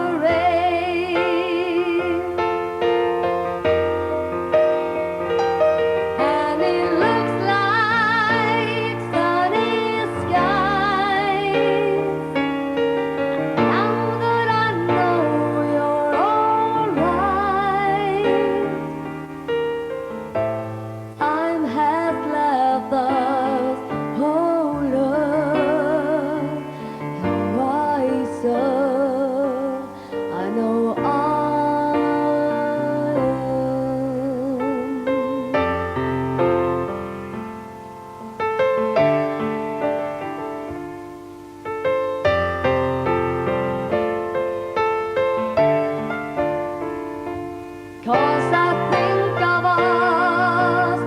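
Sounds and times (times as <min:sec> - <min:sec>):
woman singing with vibrato: 0:00.0 - 0:03.5, 0:06.1 - 0:19.1, 0:21.2 - 0:36.0, 0:48.0 - 0:51.0
piano chords: 0:00.0 - 0:51.0.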